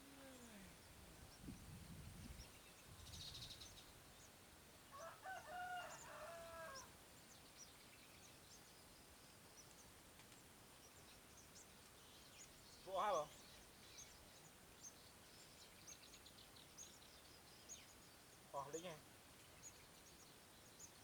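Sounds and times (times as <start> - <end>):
rooster crowing: 4.9 - 6.9.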